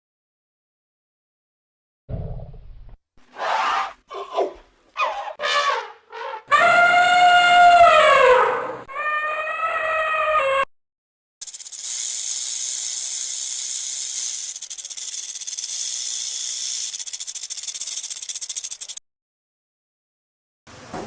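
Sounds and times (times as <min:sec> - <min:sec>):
snake hissing: 0:11.5 - 0:19.0.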